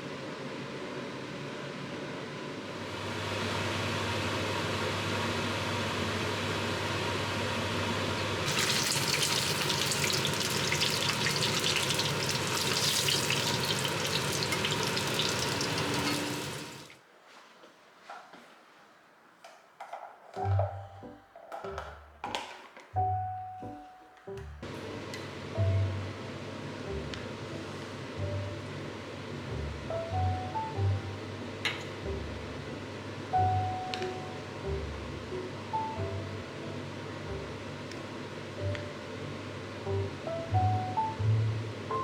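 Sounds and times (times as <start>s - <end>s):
machine hum: 0.4s - 17.0s
water running from tap: 8.4s - 17.0s.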